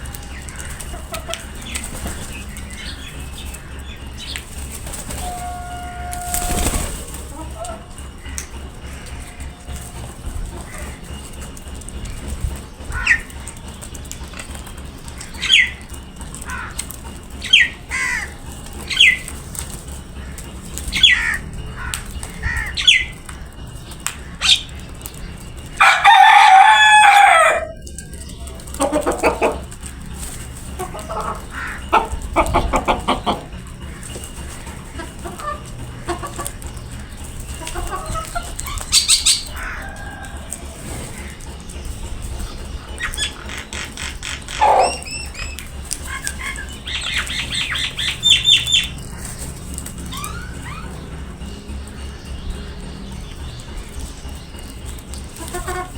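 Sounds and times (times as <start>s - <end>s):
high bird calls: 0.0s - 55.9s
rasping pulsed clucks: 0.0s - 55.9s
rooster crowing: 5.1s - 11.2s, 25.8s - 29.6s, 37.8s - 41.5s.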